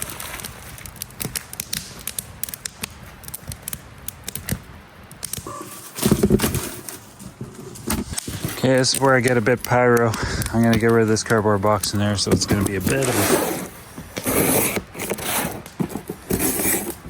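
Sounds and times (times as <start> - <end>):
campfire crackling and popping: 0.0 - 16.3.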